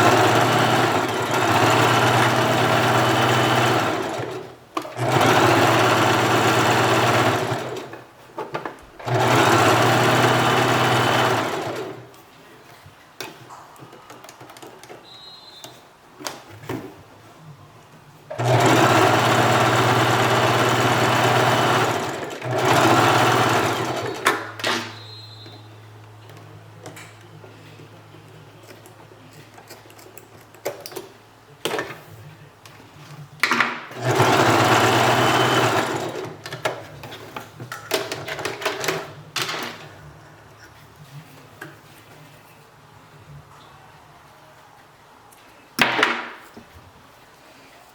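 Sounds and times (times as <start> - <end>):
sewing machine stitching: 0.0 - 8.0, 9.0 - 12.1, 18.3 - 25.1, 33.9 - 36.9.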